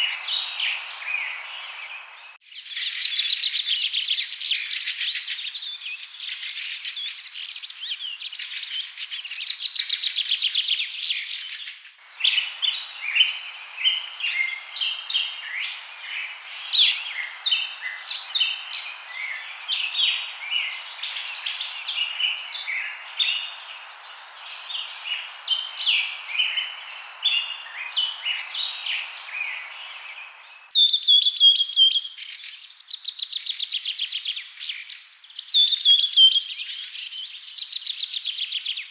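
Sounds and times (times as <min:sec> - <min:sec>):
steady hiss: 0:00.0 - 0:30.7
small birds chirping and trilling: 0:00.0 - 0:38.9.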